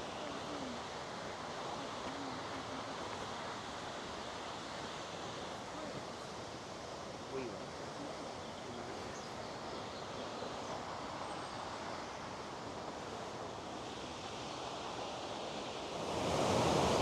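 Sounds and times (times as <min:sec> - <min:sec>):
mountain stream: 0:00.0 - 0:17.0
waterfall rushing: 0:15.2 - 0:17.0.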